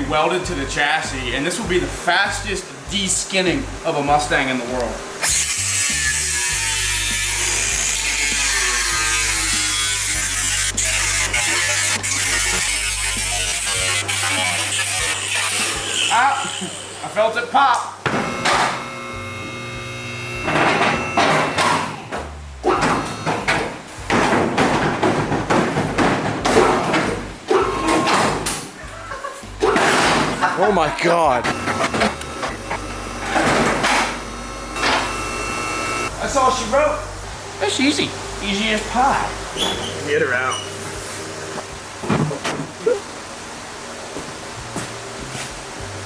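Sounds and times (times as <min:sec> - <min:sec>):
power tool cutting sheet metal: 0:05.2 - 0:17.1, 0:18.1 - 0:22.1, 0:31.5 - 0:36.1
sheet metal banging and scraping: 0:20.5 - 0:28.7.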